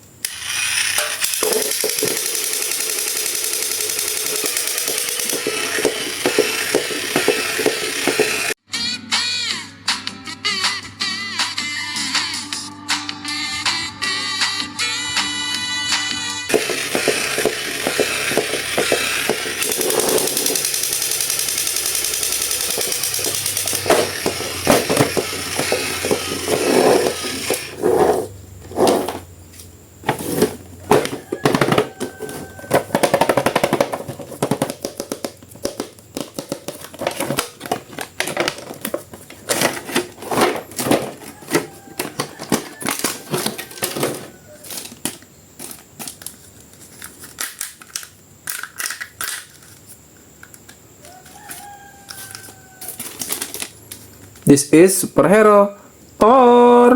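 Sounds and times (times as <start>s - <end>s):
music: 8.6s - 17.1s
plastic packaging crackling: 51.4s - 54.3s.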